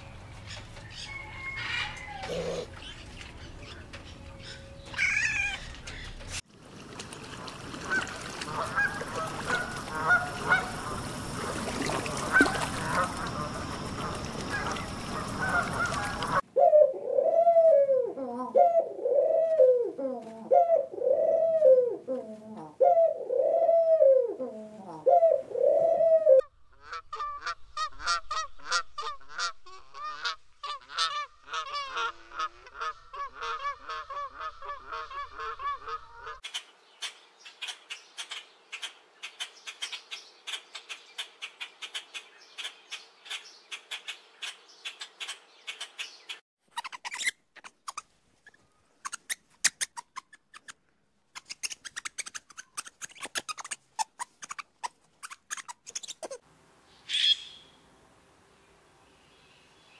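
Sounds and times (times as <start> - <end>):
dove cooing: 1.1 - 3.0, 7.9 - 26.5
swans calling: 7.0 - 16.4, 26.7 - 36.4.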